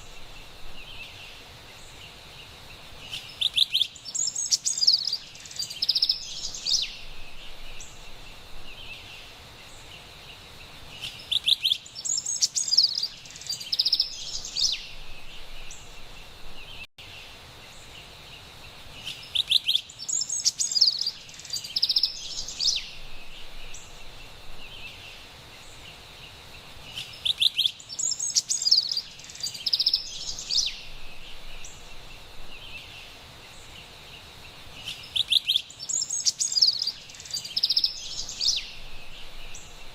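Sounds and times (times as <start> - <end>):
faint high-pitched hiss: 0.0 - 39.9
wren singing: 3.0 - 9.9, 11.0 - 16.0, 19.0 - 25.8, 26.8 - 33.9, 34.7 - 39.9.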